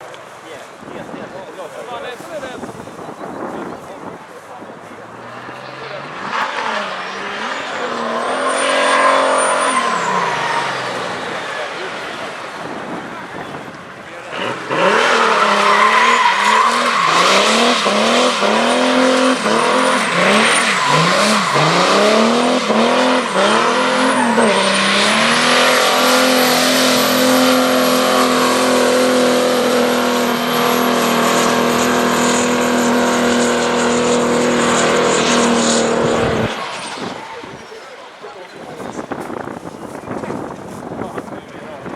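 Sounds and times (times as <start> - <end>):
tyres squealing: 4.9 - 12.5, 14.1 - 40.1
diesel engine revving: 5.0 - 37.7.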